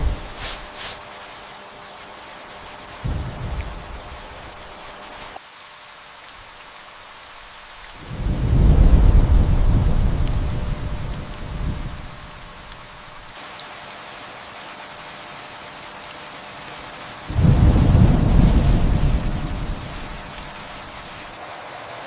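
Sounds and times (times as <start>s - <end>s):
thunder rumble: 0.0s - 0.5s, 3.0s - 4.9s, 8.0s - 13.2s, 17.3s - 21.2s
steady rain falling: 0.0s - 22.0s.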